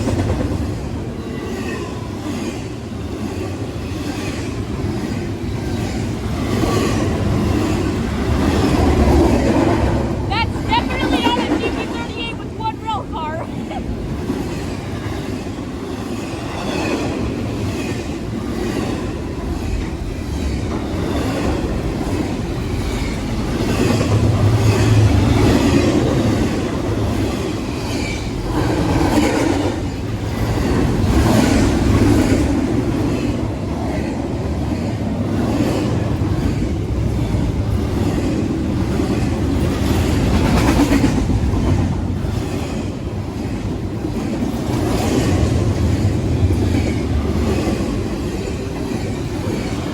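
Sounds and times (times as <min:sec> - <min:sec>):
train wheels clickety-clack: 0:00.0 - 0:12.3, 0:13.9 - 0:49.9
freight train rumbling past: 0:00.0 - 0:49.9.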